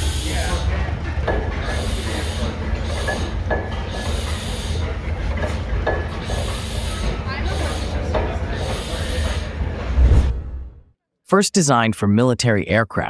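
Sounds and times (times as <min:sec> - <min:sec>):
old engine thrumming: 0:00.0 - 0:09.9.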